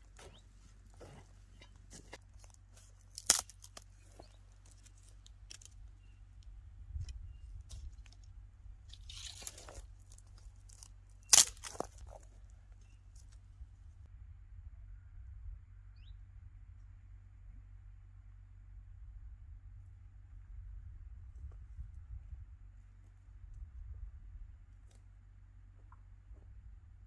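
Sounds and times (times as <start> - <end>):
dry vegetation crunching: 0.0 - 6.5, 7.3 - 13.5
sharp crack: 3.1 - 3.8, 11.3 - 12.0.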